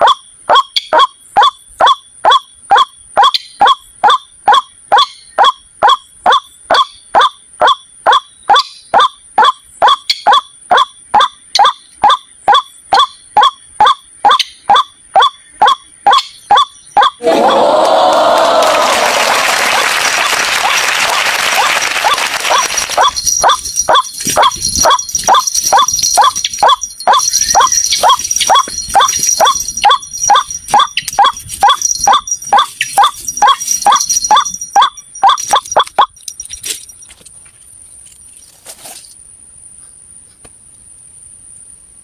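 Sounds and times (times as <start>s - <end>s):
waterhen calling: 0.0s - 17.2s, 21.5s - 36.1s
high insect trill: 0.0s - 42.0s.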